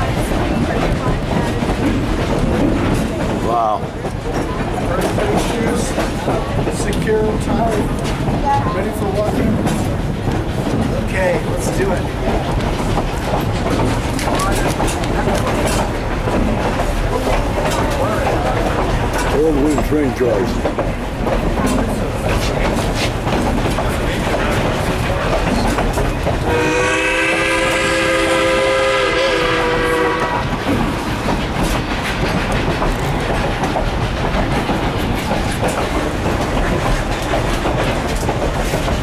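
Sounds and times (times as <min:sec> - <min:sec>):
train wheels clattering over rail joints: 0:00.0 - 0:39.0
steam whistle blast: 0:26.5 - 0:30.5.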